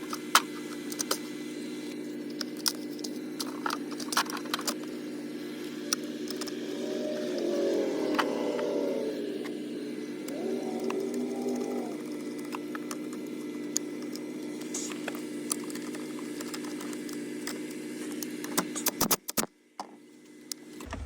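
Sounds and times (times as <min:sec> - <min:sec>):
steady hum: 0:04.9 - 0:12.8.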